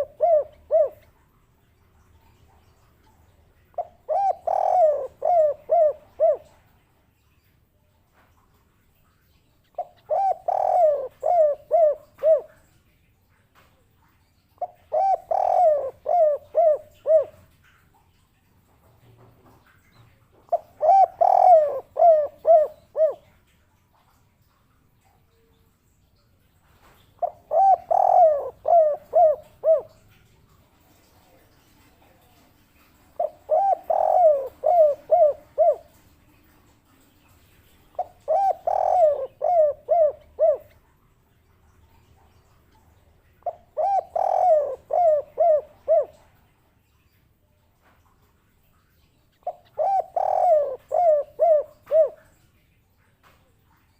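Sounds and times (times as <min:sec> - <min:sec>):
dove cooing: 0:00.0 - 0:01.3, 0:03.6 - 0:06.7, 0:09.8 - 0:12.7, 0:14.5 - 0:17.8, 0:20.5 - 0:23.4, 0:27.2 - 0:30.1, 0:31.6 - 0:36.6, 0:37.4 - 0:40.8, 0:43.3 - 0:46.2, 0:49.4 - 0:52.3.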